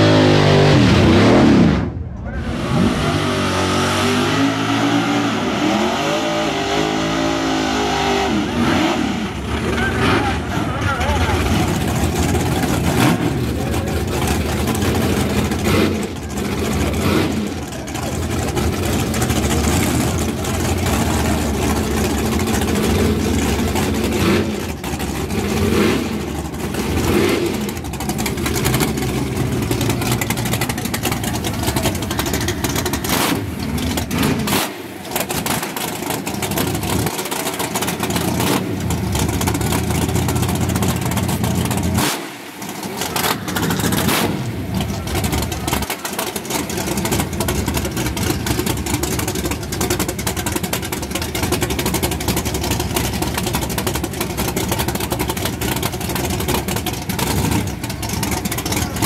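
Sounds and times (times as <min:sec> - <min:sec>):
engine throttle revs: 0:00.0 - 0:59.0
drag car engine idling roughly: 0:09.4 - 0:59.0.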